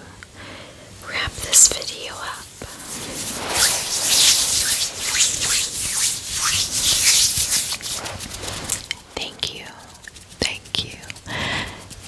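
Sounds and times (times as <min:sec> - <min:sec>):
loud rubbing or scraping: 0:02.4 - 0:10.1.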